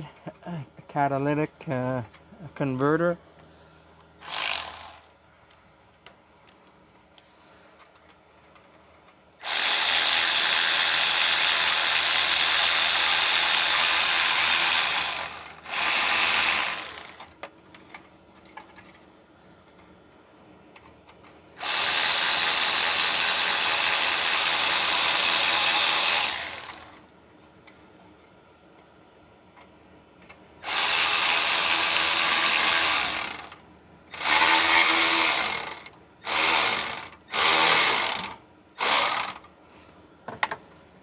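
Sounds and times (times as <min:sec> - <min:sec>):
handheld power tool running: 0:04.2 - 0:05.1, 0:09.4 - 0:17.4, 0:21.6 - 0:27.0, 0:30.6 - 0:33.6, 0:34.2 - 0:39.5.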